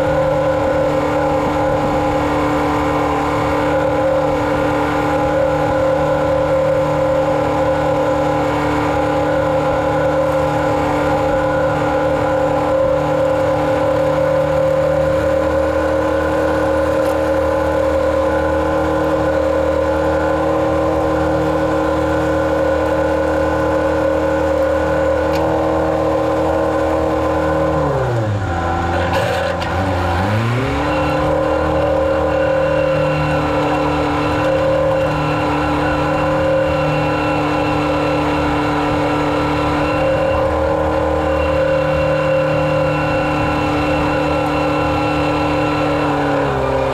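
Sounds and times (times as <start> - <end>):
farm machine engine running: 0.0 - 46.9.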